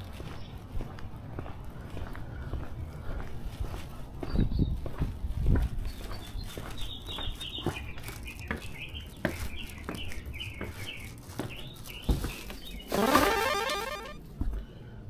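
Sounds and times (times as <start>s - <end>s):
footsteps: 4.9s - 14.6s
songbird chirping: 5.9s - 14.2s.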